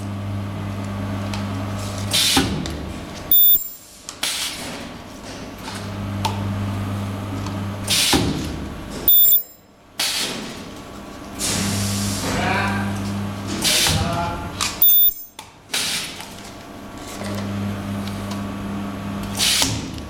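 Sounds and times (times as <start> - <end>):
machine low hum: 0.0 - 3.9, 5.6 - 9.6, 11.4 - 15.3, 16.8 - 20.0.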